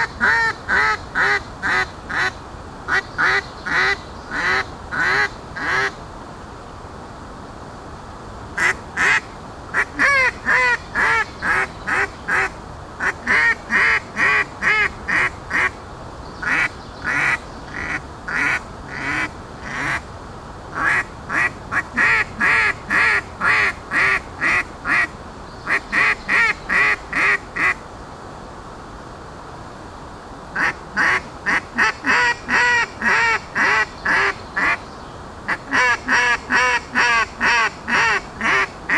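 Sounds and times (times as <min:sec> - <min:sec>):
duck call quacks: 0:30.6 - 0:34.8, 0:35.5 - 0:38.9.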